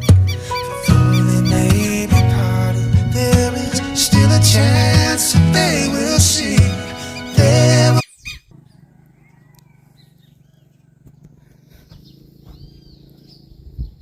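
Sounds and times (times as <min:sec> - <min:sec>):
birds chirping: 0:00.0 - 0:14.0
person singing: 0:00.1 - 0:08.0.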